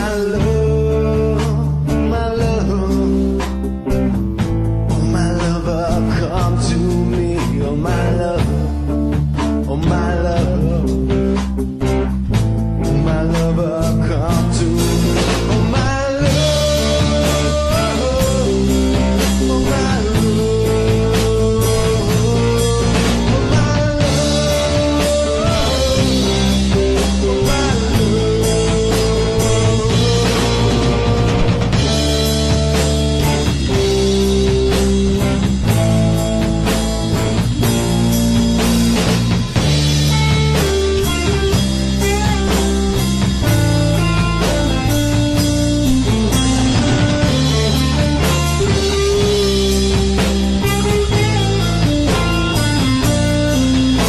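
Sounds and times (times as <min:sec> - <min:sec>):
bass: 0:00.0 - 0:54.0
drums: 0:00.0 - 0:54.0
instrumental rock music: 0:00.0 - 0:54.0
lead melody with pitch bends: 0:20.5 - 0:54.0.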